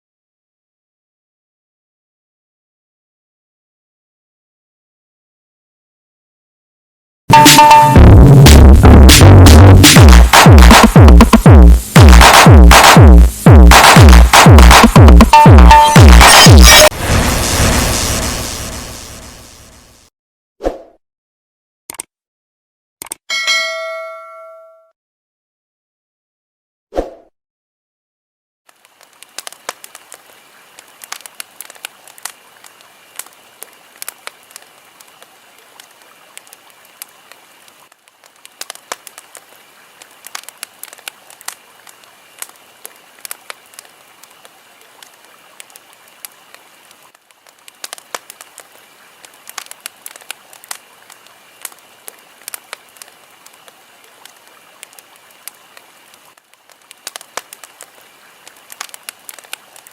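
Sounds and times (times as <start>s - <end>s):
wood fire crackling: 16.8s - 20.0s, 28.7s - 59.9s.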